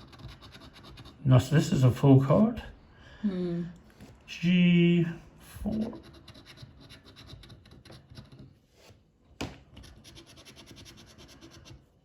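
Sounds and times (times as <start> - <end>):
scratching coating off scratch card: 0.0 - 1.6, 5.6 - 12.0.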